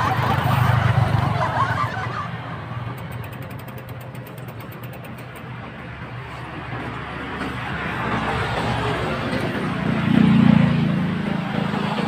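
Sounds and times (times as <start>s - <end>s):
road and traffic noise: 0.0s - 12.0s
bicycle freewheel clicking: 2.9s - 5.6s.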